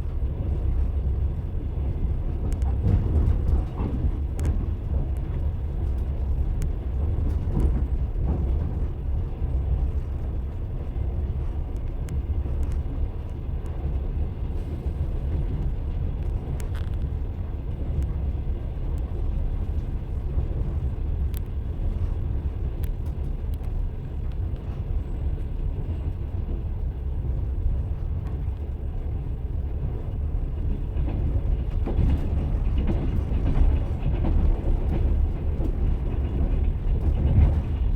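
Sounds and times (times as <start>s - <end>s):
train wheels rumbling on rails: 0.0s - 37.9s
faint clicks: 21.3s - 21.6s.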